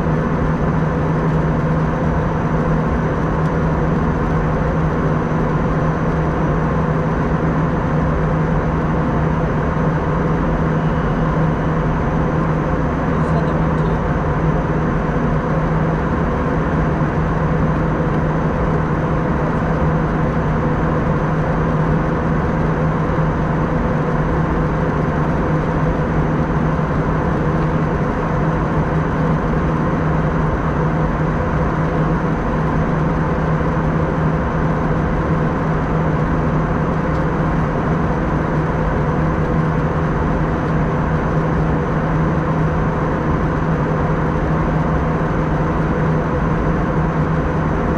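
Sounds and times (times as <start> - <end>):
aircraft engine hum: 0.0 - 47.9.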